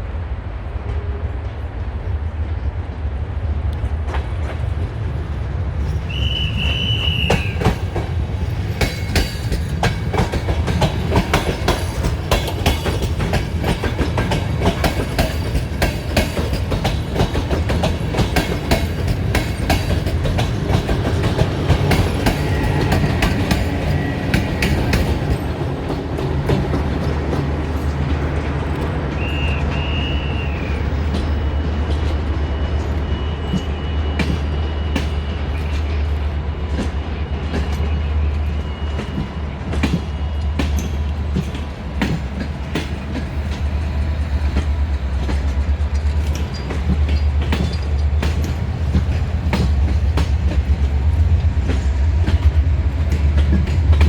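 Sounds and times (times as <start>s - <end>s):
low train rumble: 0.0s - 54.0s
train wheels clicking over rail joints: 5.8s - 54.0s
high squeal: 29.1s - 31.6s.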